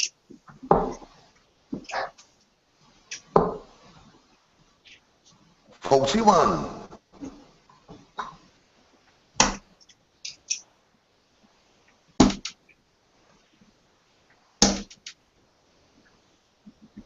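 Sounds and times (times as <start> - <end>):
darts thudding into dartboard: 12.2 - 12.6, 14.6 - 15.0.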